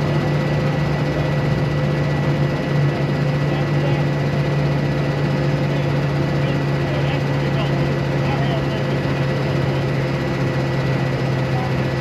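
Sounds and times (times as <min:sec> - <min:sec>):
truck engine droning: 0:00.0 - 0:12.0.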